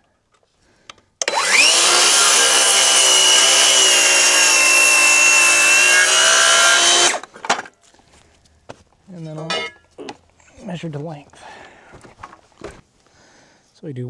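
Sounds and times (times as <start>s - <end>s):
circular saw cutting wood: 1.2s - 7.7s.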